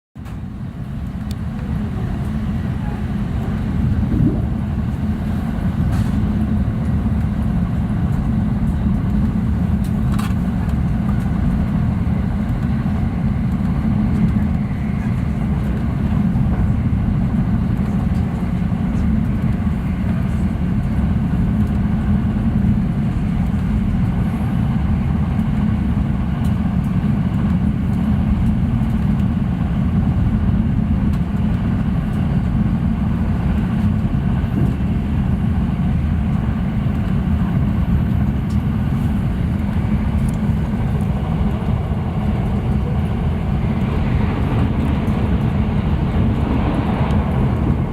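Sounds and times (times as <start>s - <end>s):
train wheels rumbling on rails: 0.2s - 47.9s.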